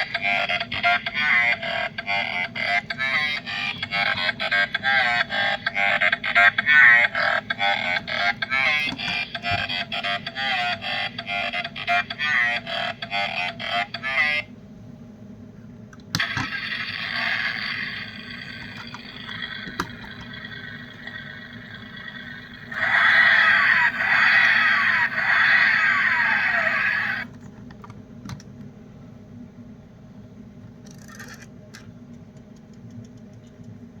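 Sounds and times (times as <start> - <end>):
toy car engine sound effect: 16.2 - 27.3.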